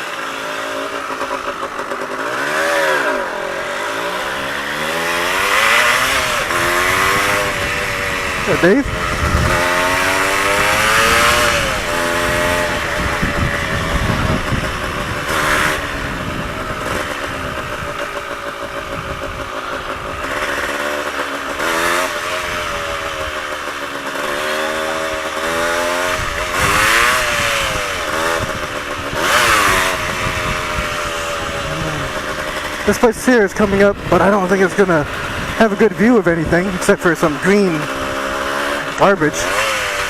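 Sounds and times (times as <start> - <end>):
two-stroke motorcycle engine accelerating: 0.0 - 40.0
wind rush on microphone: 6.0 - 20.4, 26.1 - 34.2, 35.0 - 35.6.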